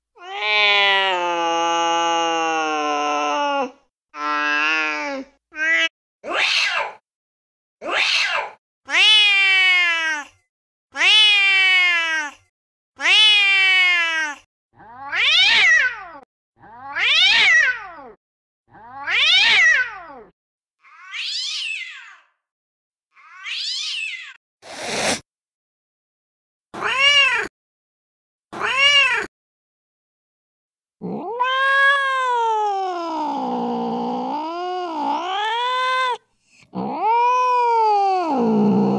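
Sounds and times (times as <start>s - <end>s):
cat meows and yowls: 0.2s - 7.0s, 7.8s - 10.4s, 11.0s - 18.2s, 18.8s - 22.3s, 23.2s - 24.4s, 26.8s - 27.5s, 28.6s - 29.3s, 31.0s - 36.2s, 36.8s - 38.9s
cat hissing: 24.6s - 25.2s.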